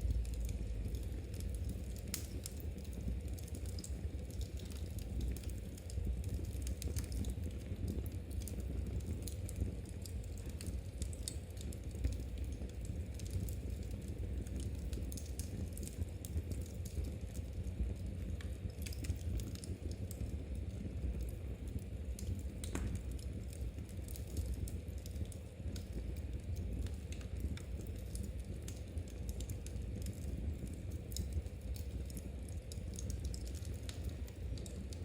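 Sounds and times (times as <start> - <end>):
fire crackling and popping: 0.0 - 35.0
low steady rumble: 0.0 - 35.0.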